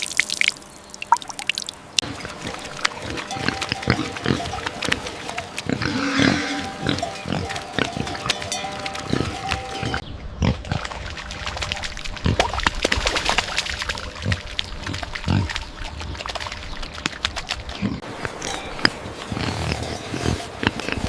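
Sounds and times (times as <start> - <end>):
farm animals grunting: 2.0 - 11.2, 13.9 - 16.4, 17.4 - 21.0.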